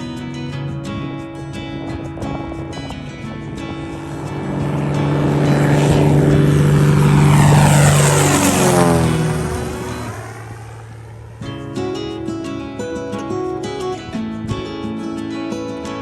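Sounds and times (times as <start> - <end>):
propeller airplane flying past: 0.0 - 15.0.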